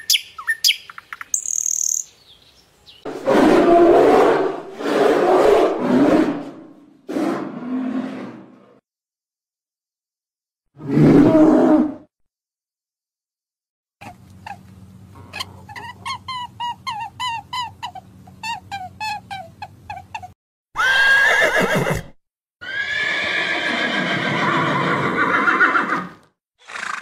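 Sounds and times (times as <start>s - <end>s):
horse whinnying: 20.7s - 27.0s.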